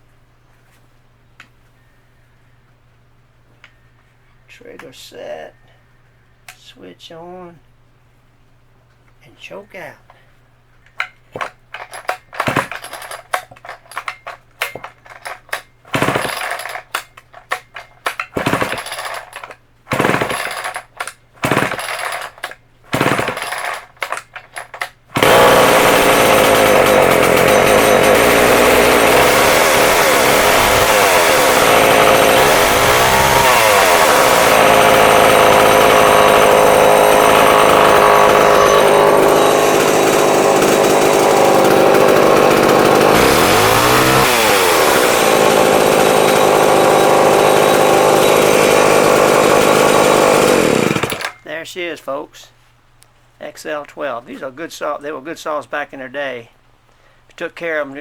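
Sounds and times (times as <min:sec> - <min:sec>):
starter cord pulls: 0:11.0 - 0:51.5
chainsaw engine running: 0:11.4 - 0:51.4.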